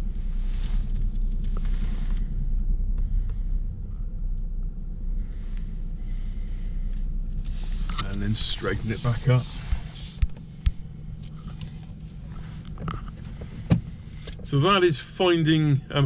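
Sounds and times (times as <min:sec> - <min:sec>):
soft rustles: 0:00.0 - 0:03.5, 0:05.2 - 0:14.5
car engine running at low revs: 0:00.0 - 0:16.0.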